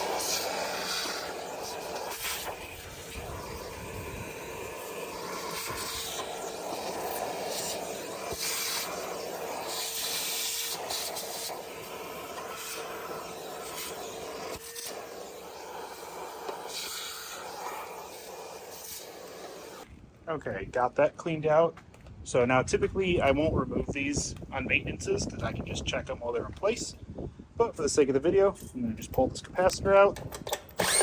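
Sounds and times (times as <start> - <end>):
hissing bursts: 0.0 - 19.9.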